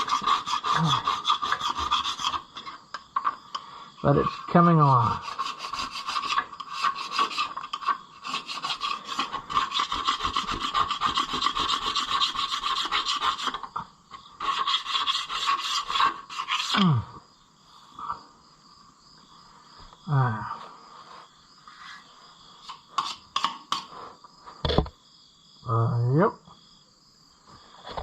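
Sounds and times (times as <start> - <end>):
hand tool scraping metal: 0.0 - 17.0, 21.7 - 24.1.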